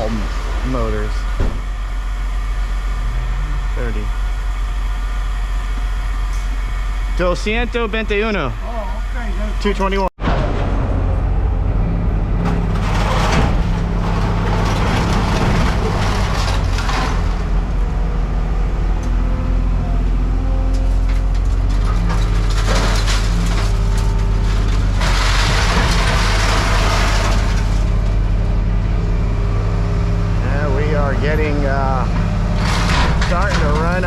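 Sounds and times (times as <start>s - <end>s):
vehicle engine humming: 0.0s - 34.0s
rough rattling noise: 10.2s - 17.8s, 21.2s - 28.5s.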